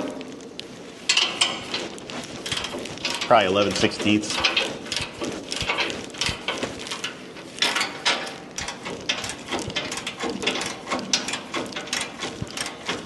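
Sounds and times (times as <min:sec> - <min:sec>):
ratchet wrench clicking: 0:02.4 - 0:07.0, 0:07.6 - 0:13.0.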